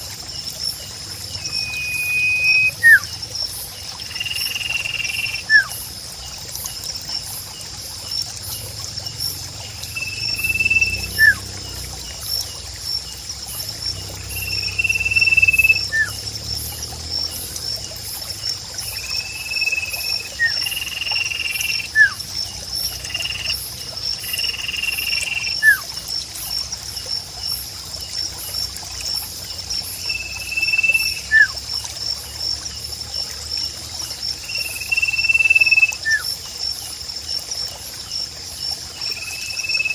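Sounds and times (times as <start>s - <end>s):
high pulsing insect trill: 0.0s - 39.9s.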